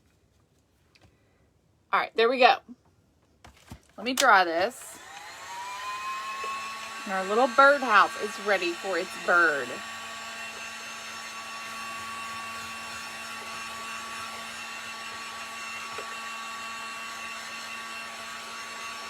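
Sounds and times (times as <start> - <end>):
hot-air blower running: 4.7 - 19.0.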